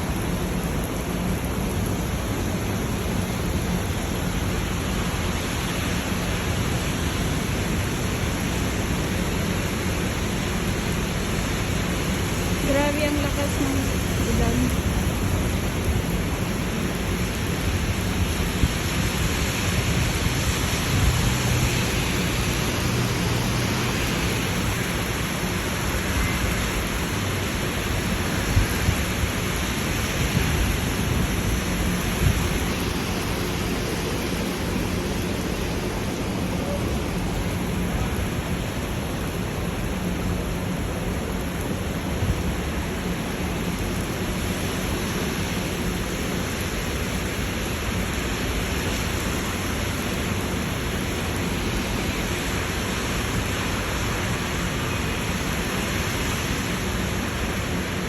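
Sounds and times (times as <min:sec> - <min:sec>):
heavy rain pouring: 0:00.0 - 0:58.0
rain taps: 0:10.0 - 0:52.0.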